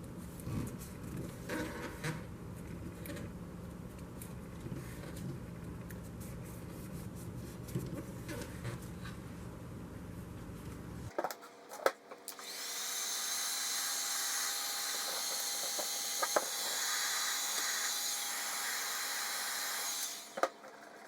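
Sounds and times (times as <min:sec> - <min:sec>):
tire inflator motor whining: 0:12.3 - 0:20.7.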